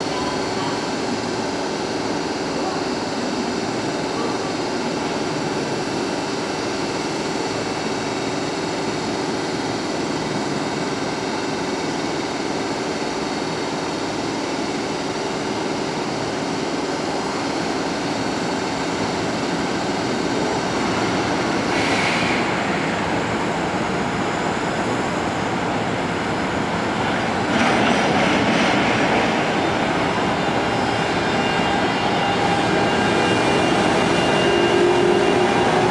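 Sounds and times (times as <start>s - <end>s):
freight train running noise: 0.0s - 35.9s.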